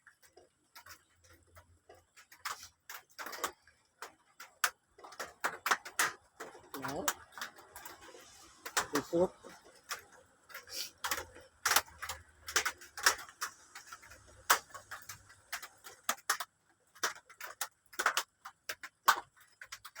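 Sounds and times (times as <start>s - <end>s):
sharp clicks and taps: 8.6s - 20.0s.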